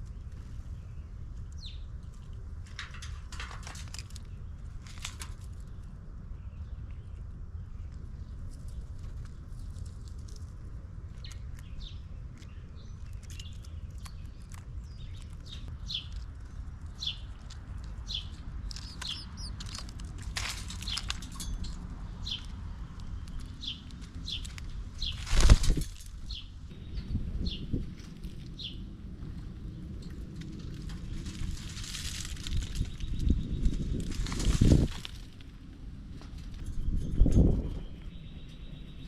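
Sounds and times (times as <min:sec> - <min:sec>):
low steady rumble: 0:00.0 - 0:39.0
small bird chirping: 0:11.2 - 0:19.9, 0:36.7 - 0:39.0.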